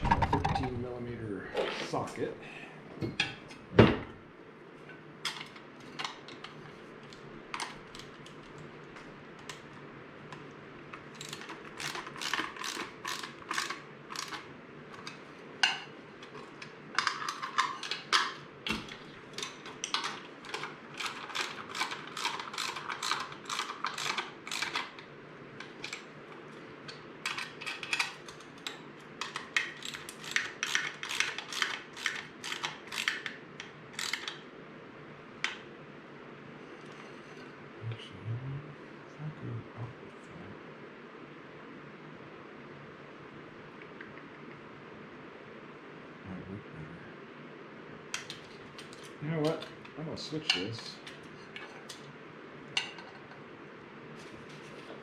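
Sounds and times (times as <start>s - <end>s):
socket ratchet clicking: 34.0s - 34.4s.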